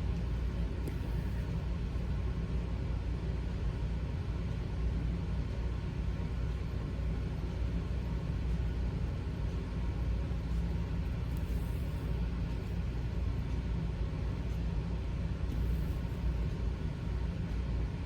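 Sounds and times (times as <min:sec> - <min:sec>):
low background rumble: 0:00.0 - 0:18.0.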